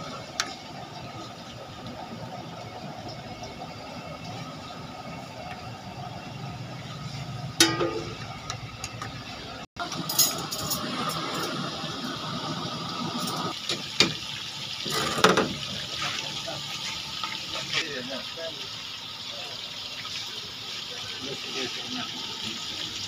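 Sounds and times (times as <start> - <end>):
chicken frying in hot oil: 0.0 - 23.0
sharp ringing clank: 7.6 - 8.2.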